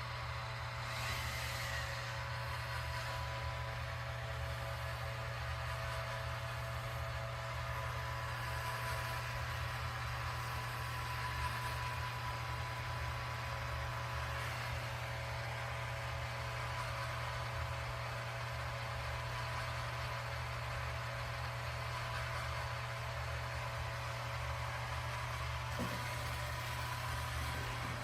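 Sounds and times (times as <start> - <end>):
robot vacuum motor whirring: 0.6 - 15.2, 24.6 - 28.0.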